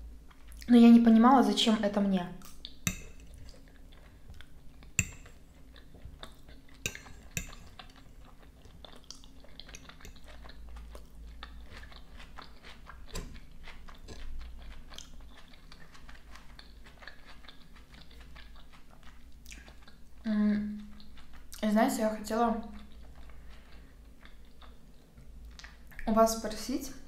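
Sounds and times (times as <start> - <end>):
chewing salad with light crunch: 0.2 - 0.7, 2.4 - 26.1
fork clinking on a plate: 2.9 - 3.4, 5.0 - 5.4, 6.8 - 7.8.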